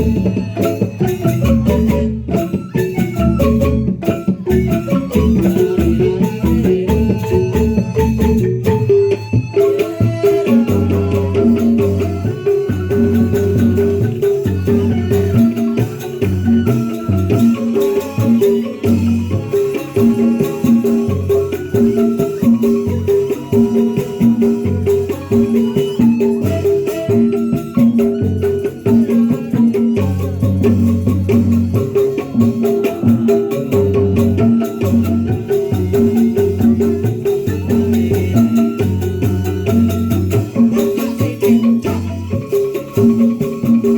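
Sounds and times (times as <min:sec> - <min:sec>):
mallet-struck keyed percussion: 0:00.0 - 0:43.9
rattling shaken percussion: 0:00.0 - 0:43.9.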